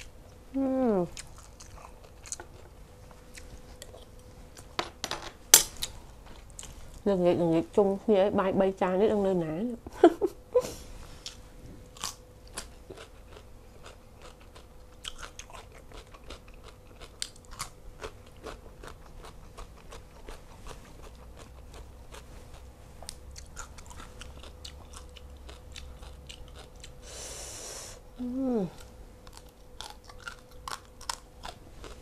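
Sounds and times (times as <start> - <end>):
crunching of raw vegetable: 28.7 - 32.0.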